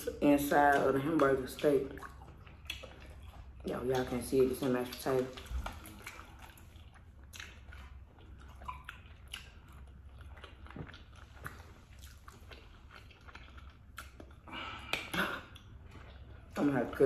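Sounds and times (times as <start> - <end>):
faint chewing and biting food: 0.0 - 17.0
mouth clicks and smacks: 0.5 - 16.3.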